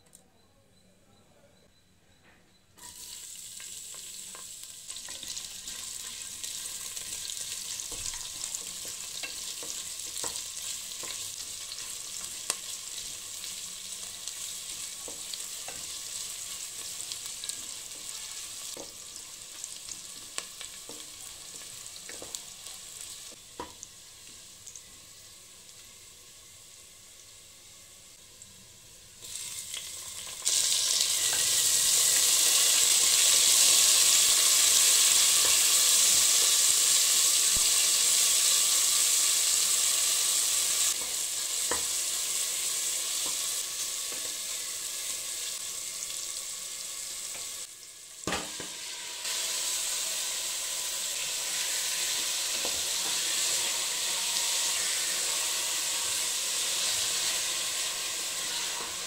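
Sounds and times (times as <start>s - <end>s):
food sizzling in hot oil: 2.8s - 59.0s.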